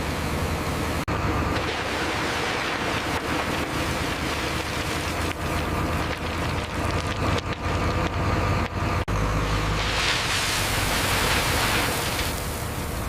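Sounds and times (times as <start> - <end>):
heavy machinery rumbling: 0.0 - 13.0
constant noisy hiss: 9.4 - 13.0.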